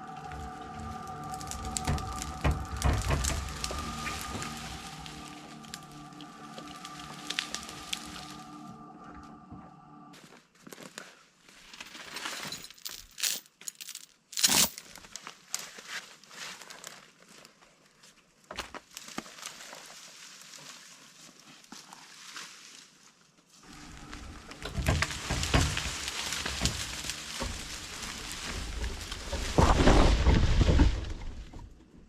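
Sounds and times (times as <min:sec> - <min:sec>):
dry twigs crackling and snapping: 0:00.0 - 0:08.9, 0:16.5 - 0:22.8, 0:23.6 - 0:31.8.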